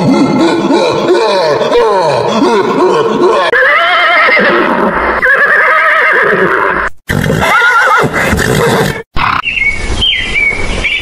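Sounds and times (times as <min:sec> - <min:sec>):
horse whinnying: 0:03.5 - 0:09.0.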